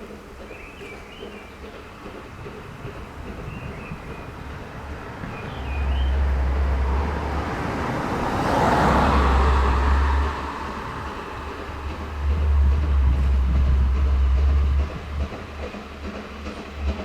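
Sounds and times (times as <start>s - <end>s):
train rumble and hiss: 0.0s - 17.0s
bird chirp: 0.4s - 2.0s, 2.9s - 7.2s
wind on microphone: 2.3s - 15.8s.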